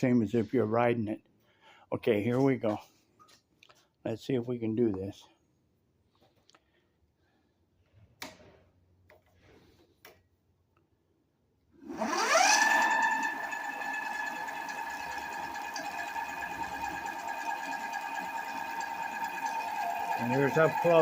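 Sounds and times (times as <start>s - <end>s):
electric motor whine: 11.9s - 21.0s.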